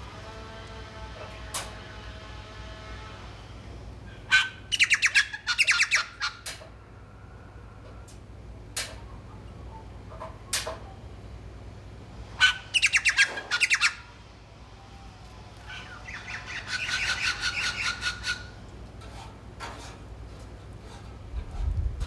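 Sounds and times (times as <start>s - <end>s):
birds calling: 4.0s - 6.8s, 9.0s - 14.3s, 15.4s - 20.6s.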